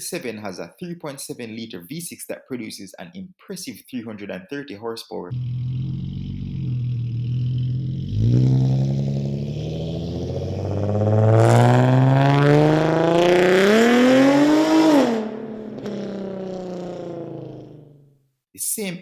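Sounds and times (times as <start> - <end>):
car engine accelerating hard: 5.3 - 17.8.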